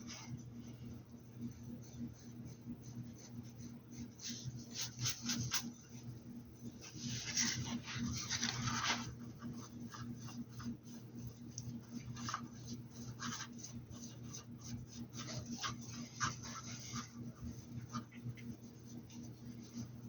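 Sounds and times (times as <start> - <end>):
steady low hum: 0.0 - 20.0
paintbrush scratching and dabbing: 1.5 - 20.0.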